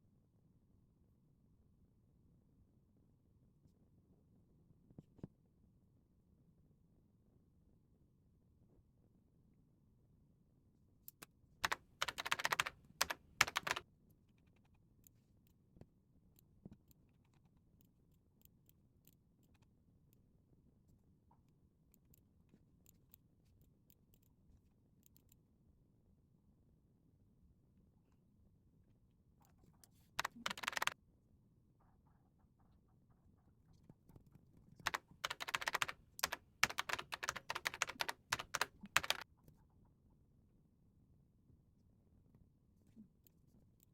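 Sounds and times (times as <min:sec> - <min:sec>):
typing on computer keyboard: 0:11.1 - 0:13.8, 0:30.2 - 0:31.0, 0:34.8 - 0:39.2.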